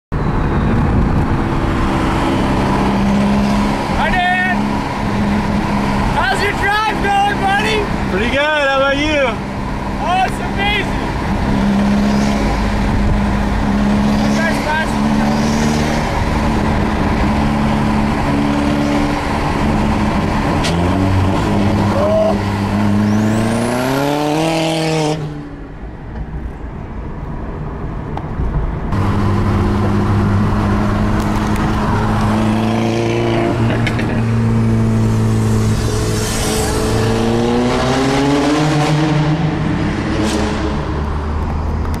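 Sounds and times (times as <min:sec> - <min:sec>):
car engine idling and revving: 0:00.1 - 0:42.0.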